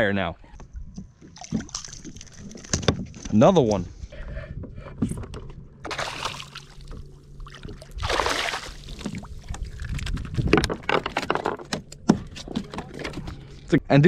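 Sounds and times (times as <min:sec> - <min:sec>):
water splashing against kayak: 0:01.0 - 0:03.2, 0:05.8 - 0:13.6.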